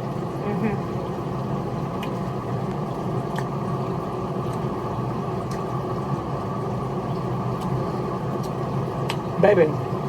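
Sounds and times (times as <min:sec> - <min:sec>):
low rumbling noise: 0:00.0 - 0:10.0.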